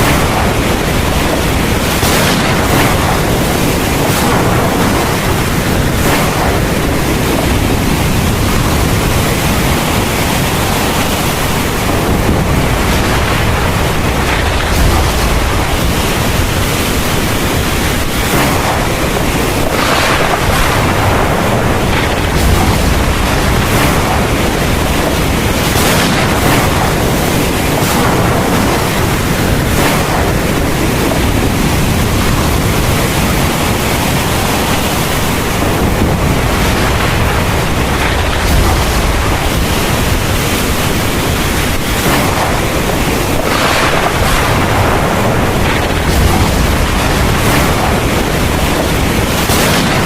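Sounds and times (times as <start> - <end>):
heavy rain pouring: 0.0 - 50.0
deep low rumble: 11.6 - 27.2, 35.6 - 50.0.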